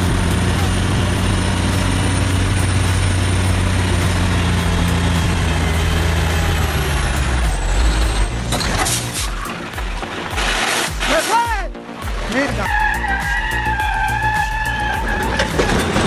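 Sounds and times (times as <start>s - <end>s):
diesel truck engine running: 0.0s - 9.4s.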